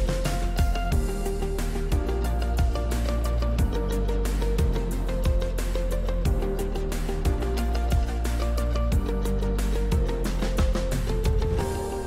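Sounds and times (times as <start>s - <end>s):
kick drum beat: 0.0s - 2.9s, 3.6s - 4.0s, 4.6s - 5.6s, 6.3s - 6.7s, 7.3s - 8.2s, 8.8s - 12.0s
melodic background music: 0.0s - 12.0s.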